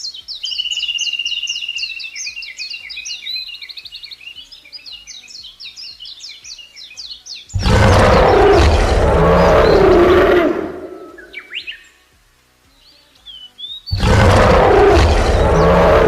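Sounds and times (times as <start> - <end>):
bird chirping falling notes: 7.4 - 11.8, 13.3 - 16.0
big cat roaring: 7.6 - 11.3, 13.9 - 16.0.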